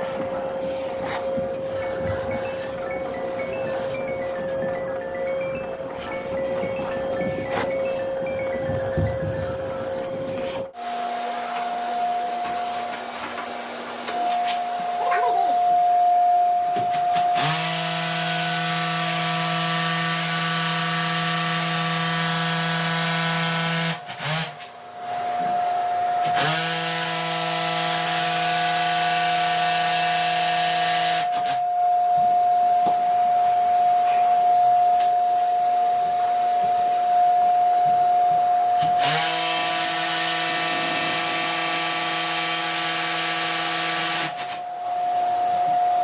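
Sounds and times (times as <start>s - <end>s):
electric power tool motor: 17.1s - 25.6s, 26.2s - 31.6s, 38.8s - 44.6s.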